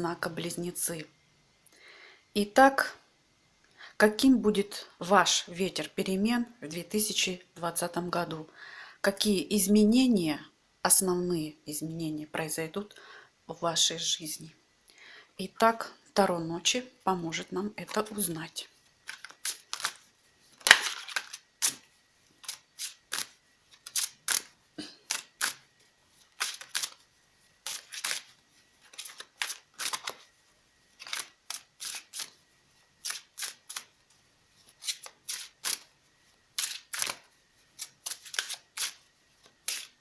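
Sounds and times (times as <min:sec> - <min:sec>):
cards being shuffled: 0:19.0 - 0:30.3, 0:30.9 - 0:32.4, 0:33.0 - 0:35.9, 0:36.5 - 0:40.0.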